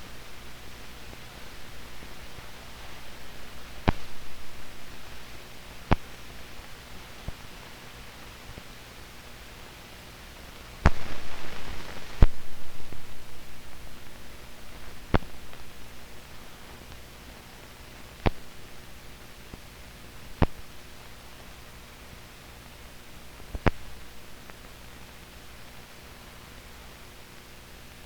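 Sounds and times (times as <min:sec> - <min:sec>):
old film soundtrack hiss: 0:00.0 - 0:28.0
sharp pops: 0:03.8 - 0:04.5, 0:10.8 - 0:12.5.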